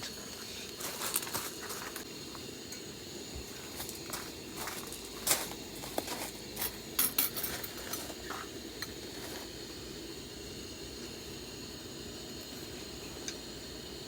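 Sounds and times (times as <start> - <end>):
low background hum: 0.0 - 14.0
utensils clinking on dishes: 5.3 - 9.0.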